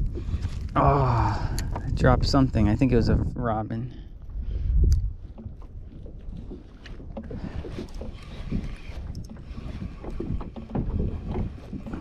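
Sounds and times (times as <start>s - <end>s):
wind buffeting microphone: 0.0s - 12.0s
water slapping against kayak hull: 4.3s - 12.0s.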